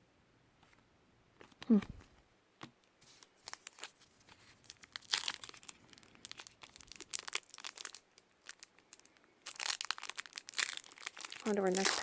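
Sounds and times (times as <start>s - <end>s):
card wrapper crinkling: 3.0s - 12.0s.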